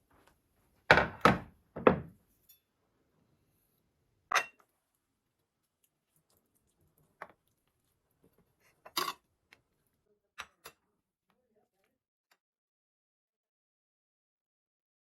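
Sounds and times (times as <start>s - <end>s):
kitchenware knocks: 0.9s - 2.2s.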